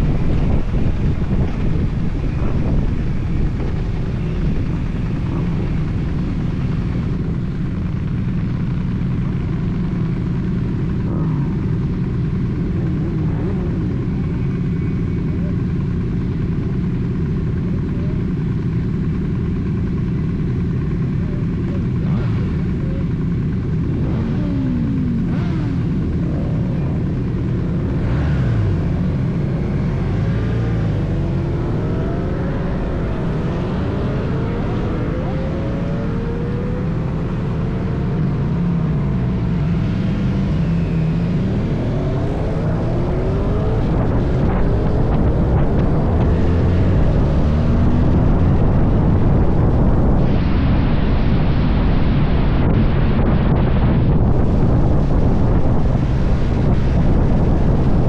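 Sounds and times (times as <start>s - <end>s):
motorcycle engine running: 0.0s - 58.0s
wind rushing: 41.5s - 58.0s.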